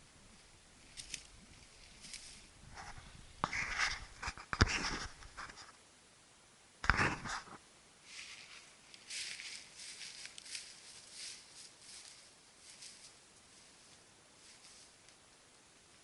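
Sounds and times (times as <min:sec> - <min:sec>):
footsteps through dry leaves: 0:08.1 - 0:14.9.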